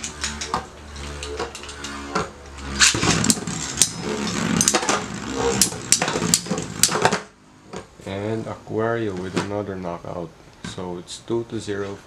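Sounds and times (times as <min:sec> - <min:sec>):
spinning tops clacking: 0:00.0 - 0:07.2
spinning tops whirring: 0:00.0 - 0:07.4.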